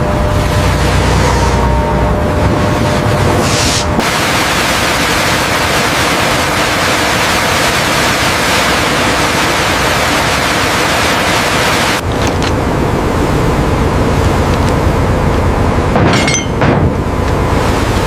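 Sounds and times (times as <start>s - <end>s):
loud steady rushing hiss: 3.4s - 12.0s.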